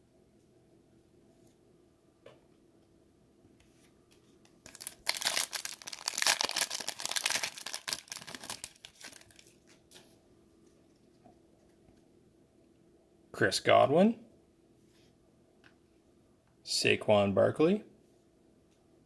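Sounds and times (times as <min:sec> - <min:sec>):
foil wrapper tearing and crinkling: 0:04.6 - 0:09.8.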